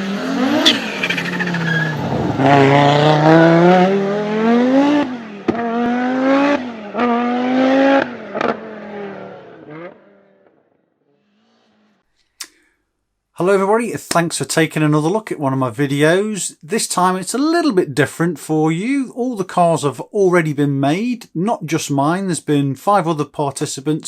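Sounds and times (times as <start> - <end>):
car engine accelerating: 0.0 - 10.6.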